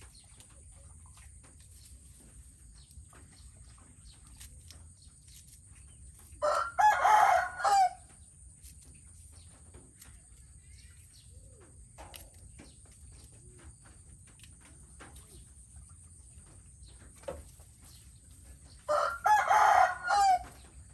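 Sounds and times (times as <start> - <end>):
rooster crowing: 6.4 - 8.1, 18.9 - 20.6.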